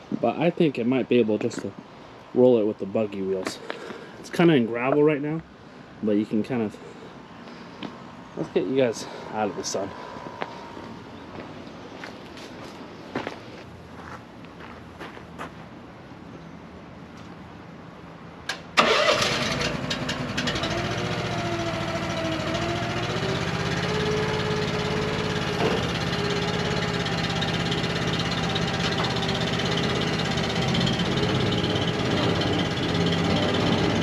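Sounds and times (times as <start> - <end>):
vehicle engine cranking and starting: 18.5 - 34.0
engine idling: 18.8 - 34.0.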